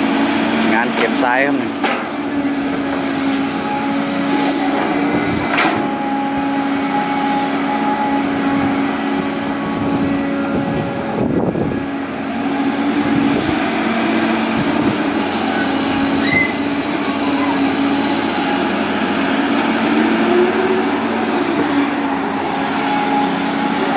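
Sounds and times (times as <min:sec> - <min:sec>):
excavator diesel engine running: 0:00.0 - 0:23.9
short knocks: 0:00.9 - 0:03.1.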